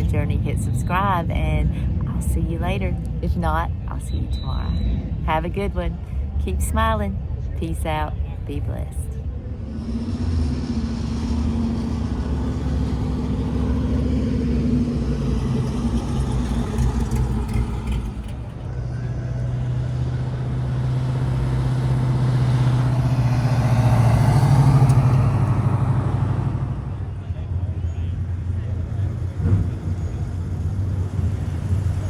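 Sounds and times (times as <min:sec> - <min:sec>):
car engines driving past: 0:09.0 - 0:32.0.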